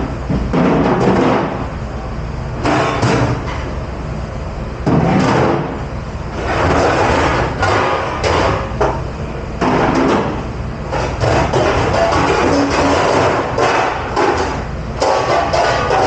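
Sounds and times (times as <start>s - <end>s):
steady low hum: 0.0s - 16.0s
dishes knocking and banging: 10.9s - 16.0s.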